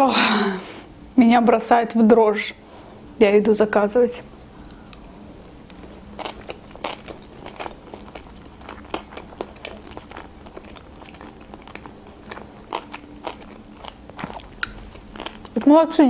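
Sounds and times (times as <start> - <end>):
person chewing with mouth clicks: 5.6 - 15.7.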